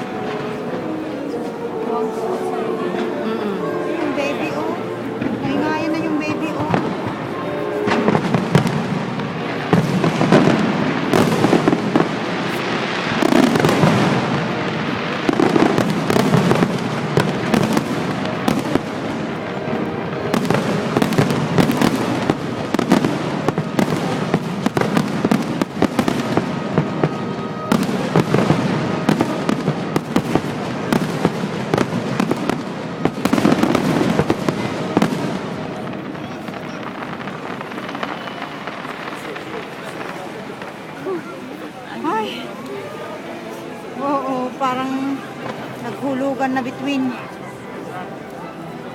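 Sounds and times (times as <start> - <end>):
fireworks bursting and crackling: 0.0 - 3.2, 4.0 - 48.9.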